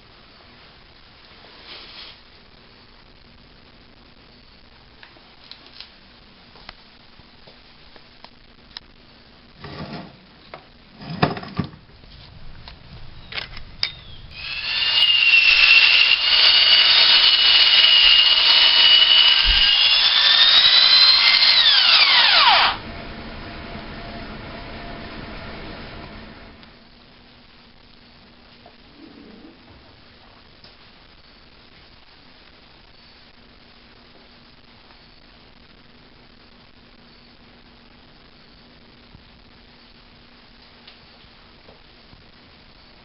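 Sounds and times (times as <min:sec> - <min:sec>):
power tool whining: 0:14.1 - 0:26.6.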